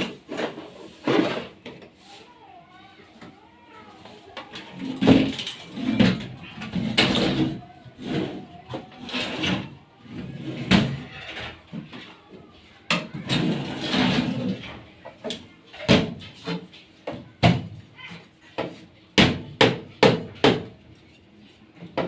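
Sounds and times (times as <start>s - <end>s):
scraping on sheet metal: 13.2s - 14.6s
knocks and bangs on sheet metal: 15.8s - 16.5s, 18.6s - 20.8s.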